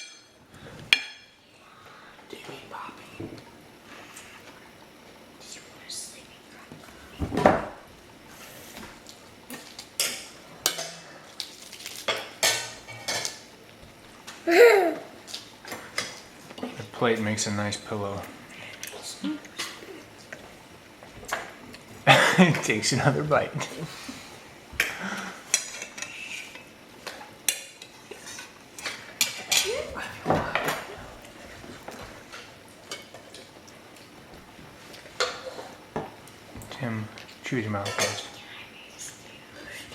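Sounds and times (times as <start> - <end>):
cutlery clinking on plates: 9.5 - 11.1
toddler voice: 29.6 - 30.1.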